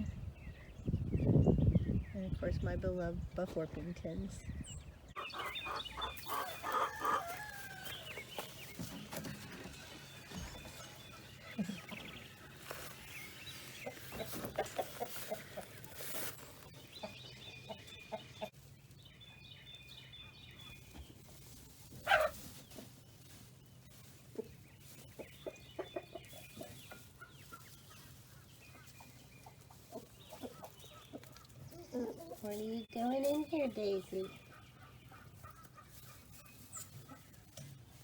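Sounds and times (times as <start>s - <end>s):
chickens clucking: 5.1s - 18.6s, 20.7s - 38.0s
chicken squawk: 5.2s - 8.0s, 22.0s - 22.4s.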